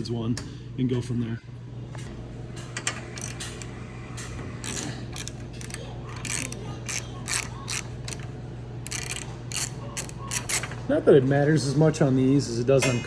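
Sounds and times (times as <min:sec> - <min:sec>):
ratchet wrench clicking: 0:02.8 - 0:03.7, 0:04.6 - 0:10.8.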